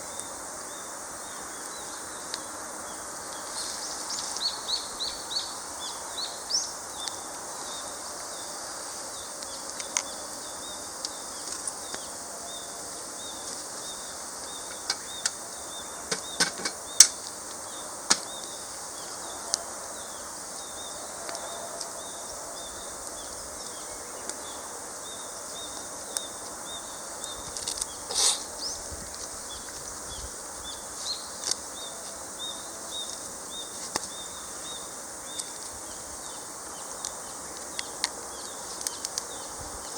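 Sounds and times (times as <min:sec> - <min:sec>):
birds chirping: 0:00.0 - 0:39.9
insects chirping: 0:00.0 - 0:39.9
campfire crackling and popping: 0:06.7 - 0:08.3, 0:09.3 - 0:12.2, 0:13.0 - 0:19.7, 0:22.9 - 0:30.4, 0:31.3 - 0:31.7, 0:35.2 - 0:39.9.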